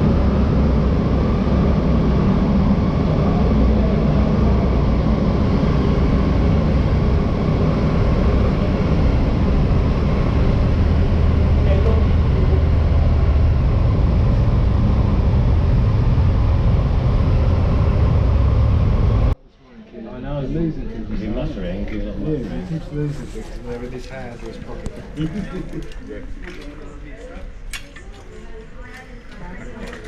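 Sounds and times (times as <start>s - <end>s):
vehicle low rumble: 0.0s - 19.4s.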